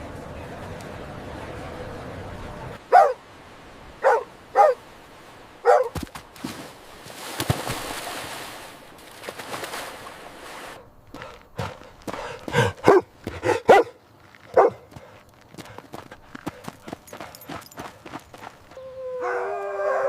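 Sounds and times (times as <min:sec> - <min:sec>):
dog barking: 0:02.9 - 0:03.2, 0:04.0 - 0:04.8, 0:05.6 - 0:06.0, 0:12.6 - 0:14.8.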